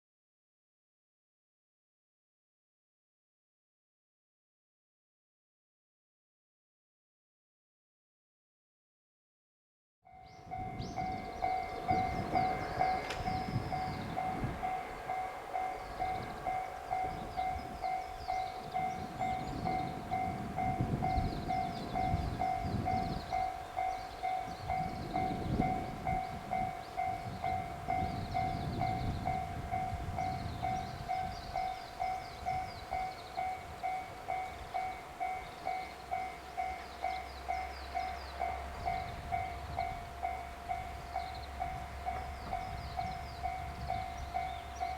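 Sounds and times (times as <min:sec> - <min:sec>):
train passing rumbling: 0:10.1 - 0:44.9.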